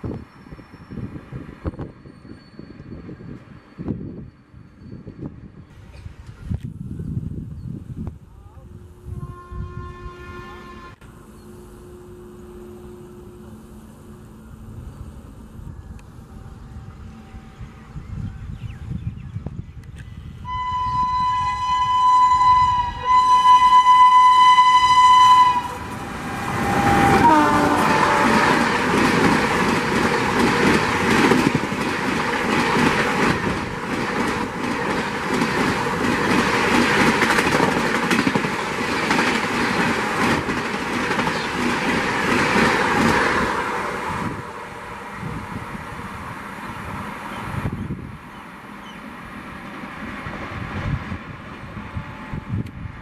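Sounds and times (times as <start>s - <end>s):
locomotive horn blasts: 8.7s - 14.2s, 20.4s - 28.7s
train wheels clattering: 25.8s - 43.4s.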